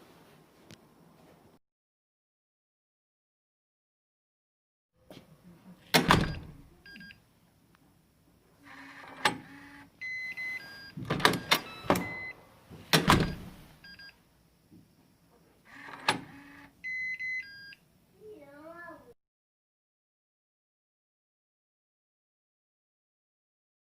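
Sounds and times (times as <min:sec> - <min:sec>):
door and latch clunking: 0:05.9 - 0:06.7, 0:10.9 - 0:13.6
lock motor whirring: 0:08.7 - 0:09.9, 0:15.7 - 0:16.7
short electronic beeps: 0:10.0 - 0:12.3.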